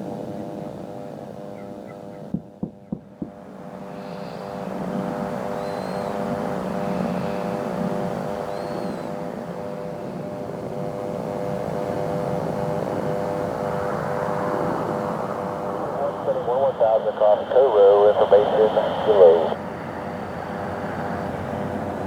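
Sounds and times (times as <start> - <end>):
aircraft engines humming: 10.0 - 22.0.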